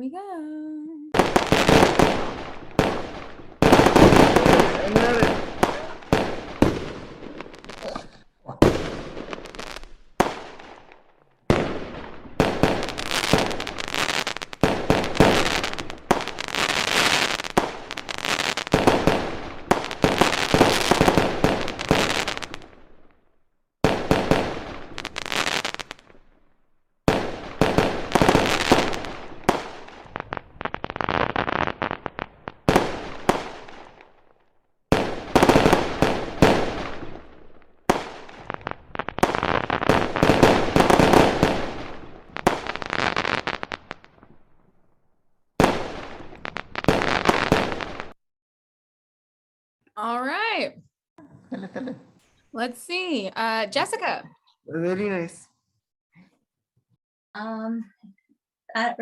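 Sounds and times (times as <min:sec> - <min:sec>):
fireworks crackling and banging: 0:01.1 - 0:44.9, 0:45.5 - 0:48.2.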